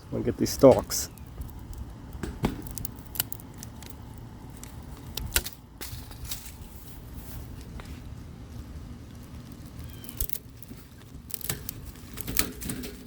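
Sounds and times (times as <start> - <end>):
leaves rustling: 0.0 - 13.0
kale stalks being cut: 9.6 - 13.0.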